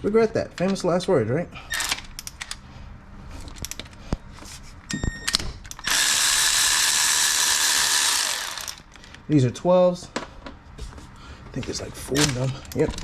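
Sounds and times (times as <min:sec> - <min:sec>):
tool handling clicks: 0:01.7 - 0:02.6, 0:03.4 - 0:04.2, 0:12.1 - 0:13.0
handheld power tool running: 0:05.8 - 0:08.9.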